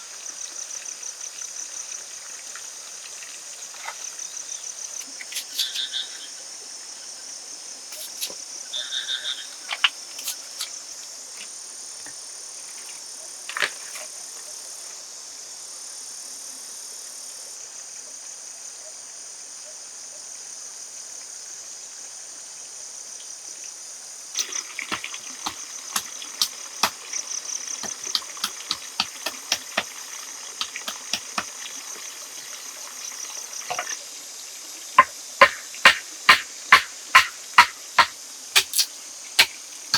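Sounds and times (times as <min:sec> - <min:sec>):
insects chirring: 0:00.0 - 0:17.3, 0:22.9 - 0:39.9
short calls: 0:05.4 - 0:06.3
sharp clicks and knocks: 0:30.6 - 0:31.5.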